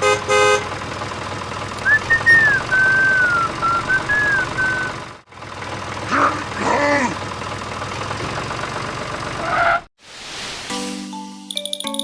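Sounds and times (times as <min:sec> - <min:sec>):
whistled tune: 0:01.8 - 0:05.0.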